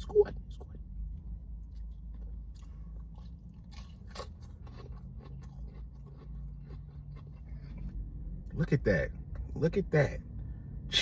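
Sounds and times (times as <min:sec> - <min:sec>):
steady low hum: 0:00.0 - 0:11.0
person chewing: 0:01.6 - 0:08.1.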